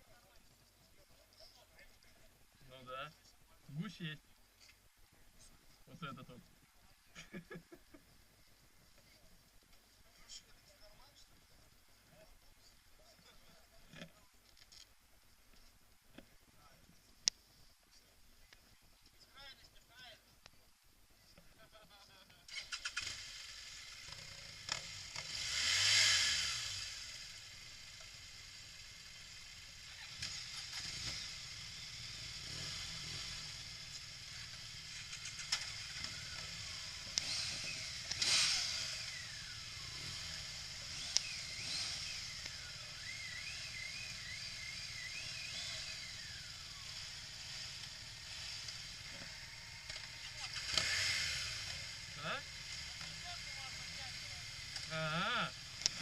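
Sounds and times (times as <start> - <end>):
outdoor ambience hiss: 0.0 - 56.0
vehicles passing by: 22.5 - 56.0.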